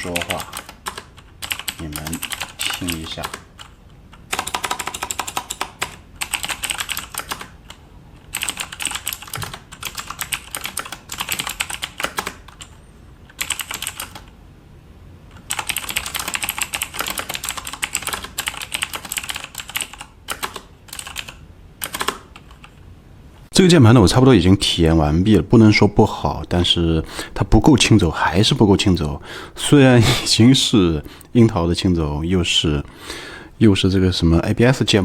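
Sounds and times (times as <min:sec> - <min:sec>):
mechanical keyboard typing: 0:00.0 - 0:14.3, 0:15.4 - 0:22.7.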